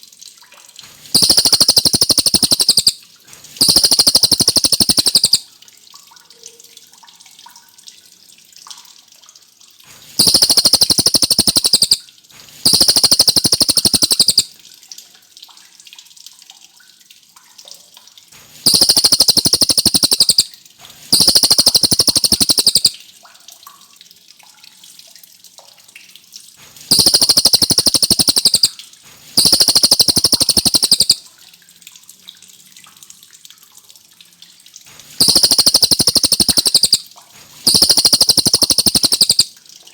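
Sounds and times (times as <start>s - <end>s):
songbird trilling: 1.2s - 3.0s, 3.6s - 5.4s, 10.2s - 12.0s, 12.6s - 14.5s, 18.7s - 20.5s, 21.1s - 23.0s, 26.9s - 28.7s, 29.4s - 31.2s, 35.2s - 37.0s, 37.6s - 39.5s.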